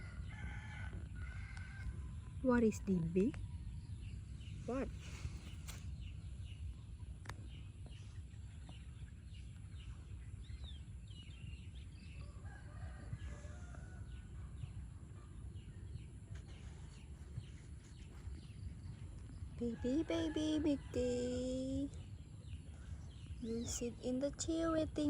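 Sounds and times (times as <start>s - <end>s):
low steady rumble: 0.0s - 25.0s
rooster crowing: 12.2s - 14.2s.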